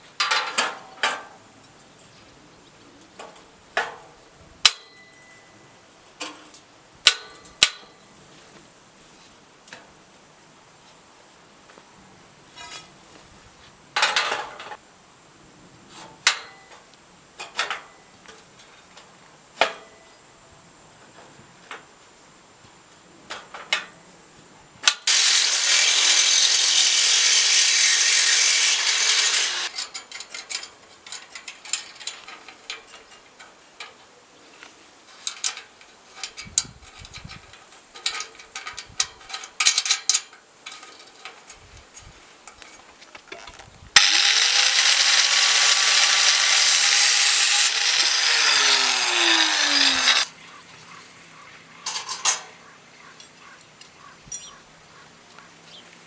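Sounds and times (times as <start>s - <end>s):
power tool running: 25.0s - 29.7s, 44.0s - 50.3s
power tool whine spinning down: 25.1s - 29.7s, 44.0s - 50.3s.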